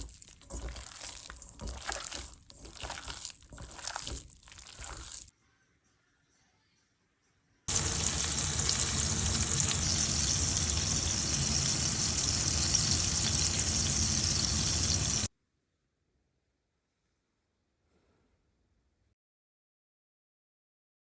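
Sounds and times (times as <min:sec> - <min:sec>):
food sizzling in a pan: 0:00.0 - 0:05.3, 0:07.7 - 0:15.3.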